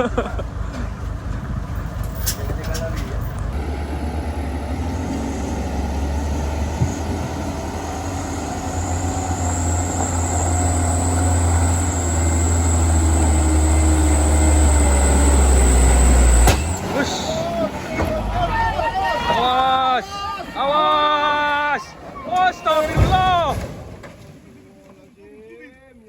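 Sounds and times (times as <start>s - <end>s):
truck diesel engine under load: 0.0s - 23.0s.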